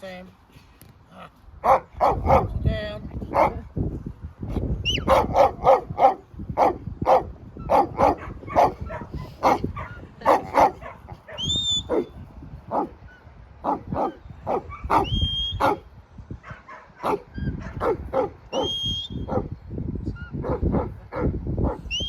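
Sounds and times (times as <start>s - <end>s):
dog barking: 1.6s - 2.6s, 3.3s - 3.6s, 5.0s - 13.0s, 13.6s - 18.7s, 19.3s - 19.5s, 20.4s - 21.9s
short high whistles: 11.4s - 11.9s, 15.0s - 15.7s, 18.5s - 19.3s.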